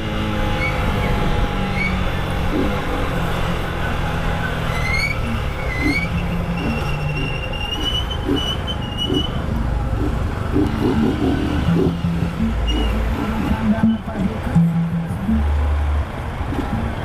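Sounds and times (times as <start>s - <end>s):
motorcycle engine cruising: 0.0s - 17.0s
high-pitched squeaks: 3.8s - 15.6s
thin whistle-like tone: 4.7s - 9.4s.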